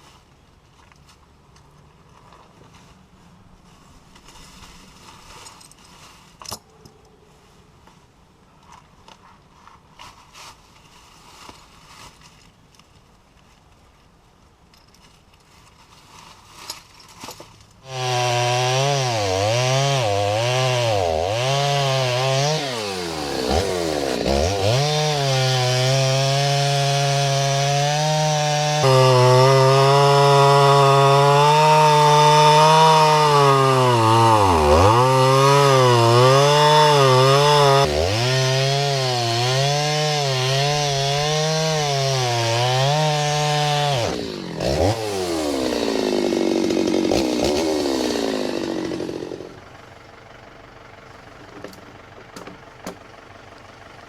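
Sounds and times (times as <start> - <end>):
chainsaw cutting log: 17.8 - 49.7.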